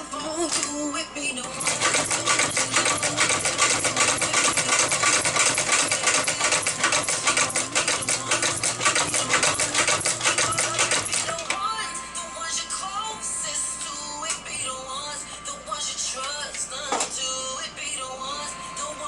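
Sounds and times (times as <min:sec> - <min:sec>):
sewing machine stitching: 0:01.4 - 0:11.6.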